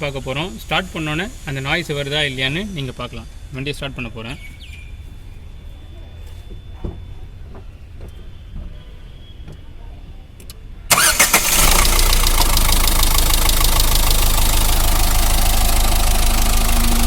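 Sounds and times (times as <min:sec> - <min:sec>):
diesel car engine starting and idling: 0:10.9 - 0:17.0.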